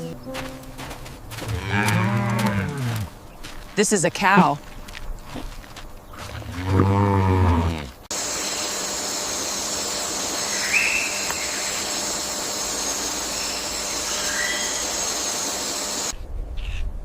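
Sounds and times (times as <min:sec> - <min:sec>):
cow mooing: 0:01.4 - 0:03.1, 0:06.3 - 0:08.0
steady hiss: 0:08.1 - 0:16.2.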